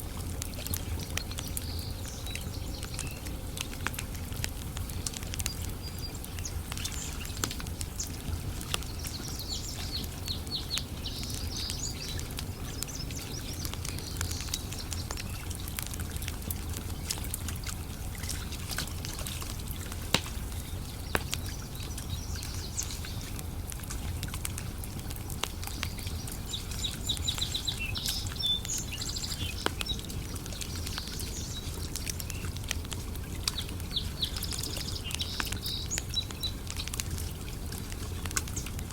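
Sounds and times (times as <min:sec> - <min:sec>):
campfire crackling and popping: 0:00.0 - 0:38.9
birds chirping: 0:04.8 - 0:15.8, 0:25.5 - 0:32.6, 0:33.4 - 0:38.9.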